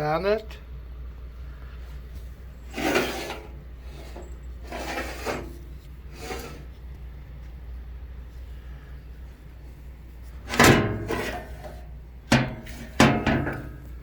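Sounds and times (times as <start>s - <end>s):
steady low hum: 0.0s - 14.0s
grinder scraping on surface: 2.7s - 5.6s.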